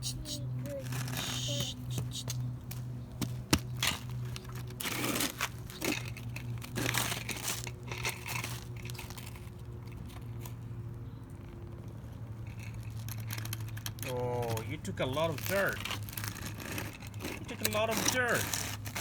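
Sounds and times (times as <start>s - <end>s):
steady low hum: 0.0s - 7.7s
toy digger scraping dirt: 0.0s - 10.6s, 12.2s - 19.0s.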